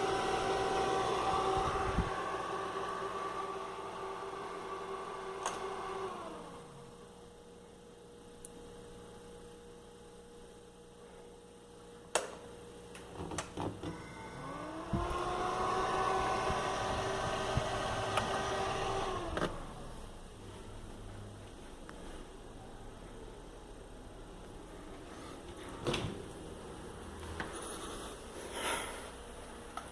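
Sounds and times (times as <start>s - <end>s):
refrigerator motor whining: 0.0s - 7.4s, 13.4s - 20.3s.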